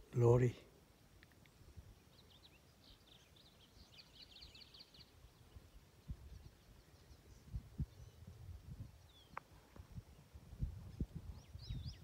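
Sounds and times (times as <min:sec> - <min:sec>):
faint bird chirps: 0:00.9 - 0:12.0.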